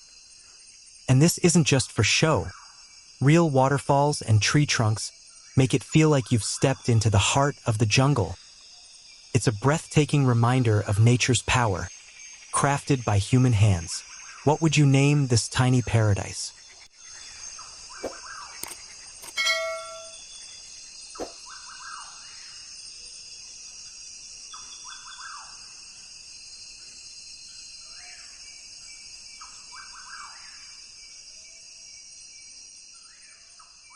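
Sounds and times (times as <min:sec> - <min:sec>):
high-pitched insect chorus: 0:00.0 - 0:33.9
sharp clicks: 0:18.0 - 0:19.5.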